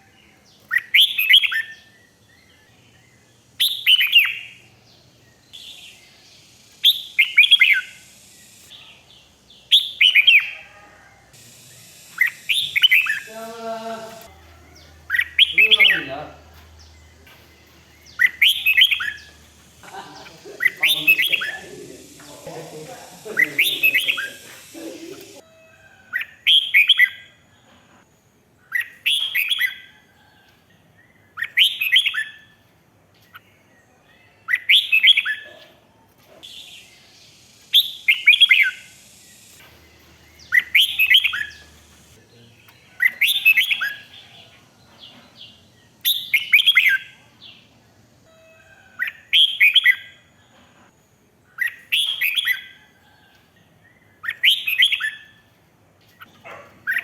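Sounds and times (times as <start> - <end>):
bird singing warbled phrases: 0.0 - 25.4, 28.6 - 29.9, 31.0 - 32.5, 33.2 - 35.8, 36.4 - 47.7, 51.5 - 52.8, 53.8 - 55.4, 56.0 - 57.0.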